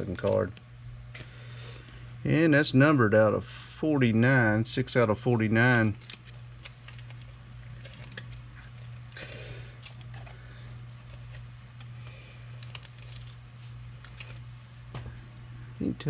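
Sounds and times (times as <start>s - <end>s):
cards rustling scrape: 5.2s - 14.5s.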